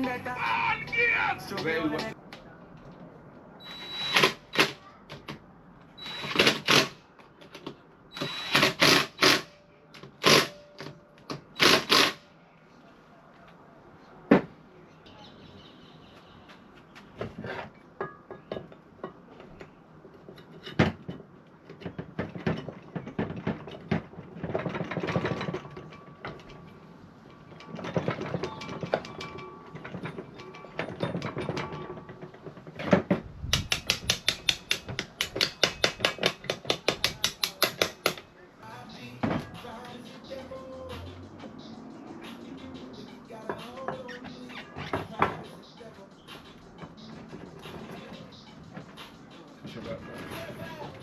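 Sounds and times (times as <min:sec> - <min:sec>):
ratchet clicking: 0:08.2 - 0:09.5, 0:10.2 - 0:10.6, 0:11.6 - 0:12.2
metal parts clinking: 0:17.4 - 0:33.1.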